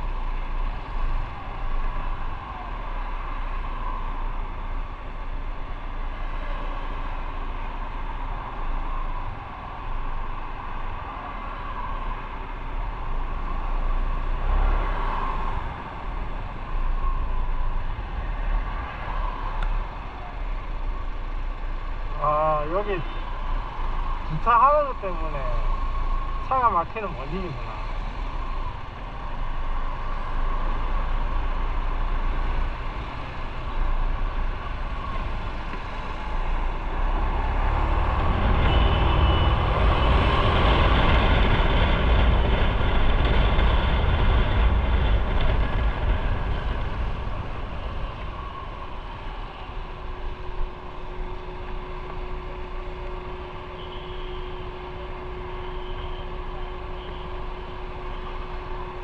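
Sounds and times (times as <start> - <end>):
rushing noise: 12.8 - 59.0.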